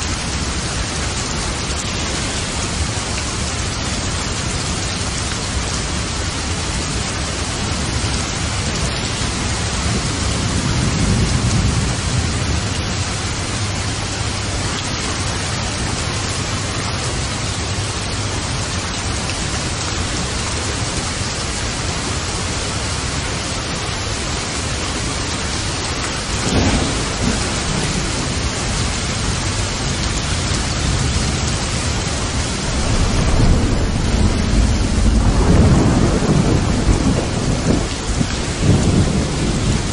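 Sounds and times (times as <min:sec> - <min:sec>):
heavy rain: 0:00.0 - 0:39.9
thunder rolling: 0:08.4 - 0:14.5, 0:25.8 - 0:39.9.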